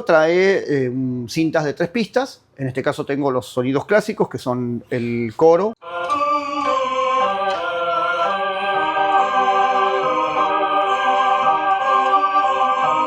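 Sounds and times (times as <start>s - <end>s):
tape choir chords: 5.8s - 13.0s.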